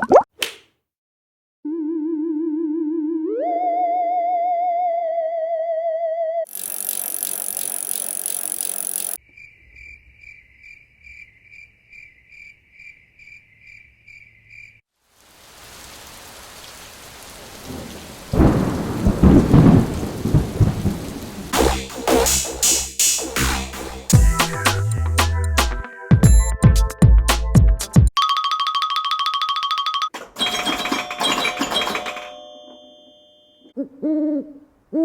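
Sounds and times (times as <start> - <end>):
even chirps: 6.5 - 10.0
steady rain: 15.0 - 22.4
rolling thunder: 17.5 - 21.6
thunder cracks: 17.5 - 22.3.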